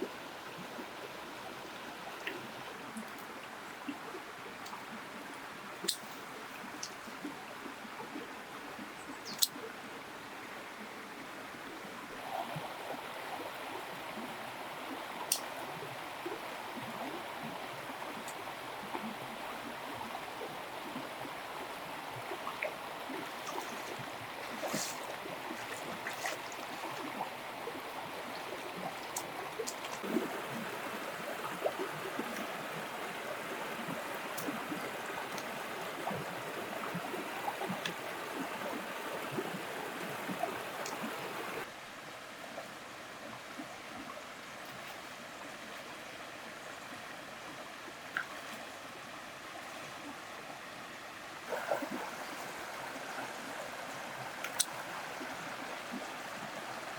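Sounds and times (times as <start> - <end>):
water trickling: 12.2 - 41.7.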